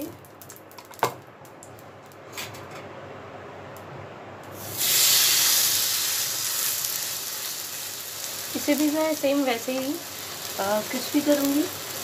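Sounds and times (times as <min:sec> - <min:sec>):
bread sizzling in a hot pan: 0:04.5 - 0:12.0.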